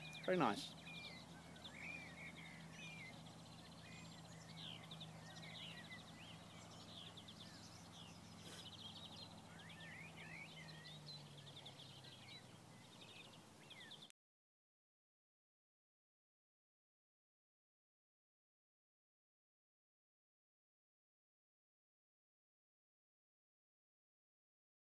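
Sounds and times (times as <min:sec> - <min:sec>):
songbirds singing: 0:00.0 - 0:14.1.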